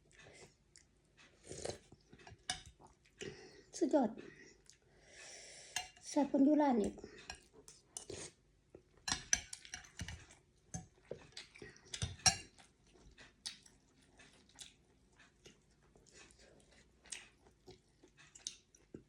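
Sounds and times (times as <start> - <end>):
person chewing: 0.0 - 3.4, 4.5 - 4.9, 7.2 - 19.0
spoon and chopsticks clinking bowl: 2.2 - 2.8, 9.0 - 10.9, 12.0 - 12.6.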